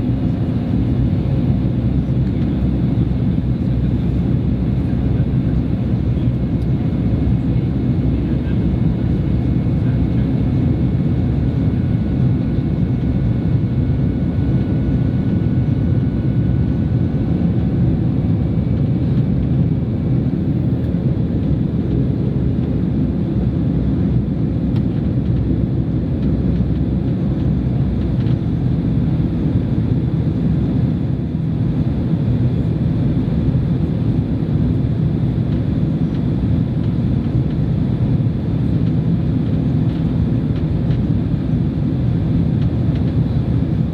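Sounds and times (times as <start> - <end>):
airplane cabin engine rumble: 0.0 - 43.9.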